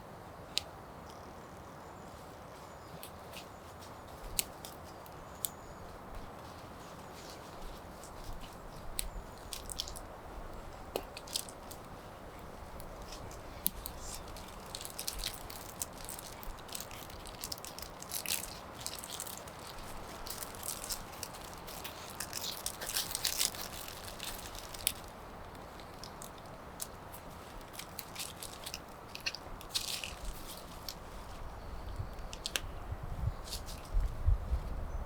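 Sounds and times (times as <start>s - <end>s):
campfire crackling: 7.8s - 31.0s.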